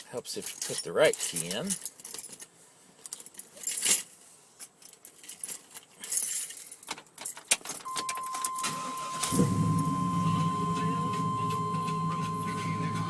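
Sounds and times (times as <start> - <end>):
keys jangling in ignition: 0.4 - 2.5, 3.1 - 10.1
high warning tone: 7.9 - 13.0
engine turning over and starting: 8.5 - 12.3.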